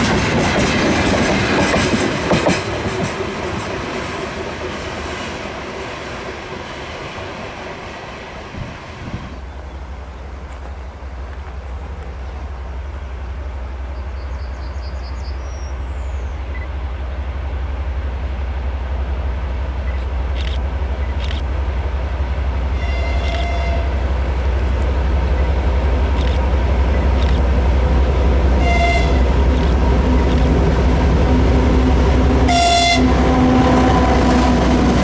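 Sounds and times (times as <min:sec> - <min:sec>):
diesel locomotive engine rumble: 0:00.0 - 0:35.0
train horn blast: 0:22.7 - 0:24.1, 0:28.4 - 0:35.0
sharp clicks: 0:26.1 - 0:26.5, 0:27.1 - 0:27.5.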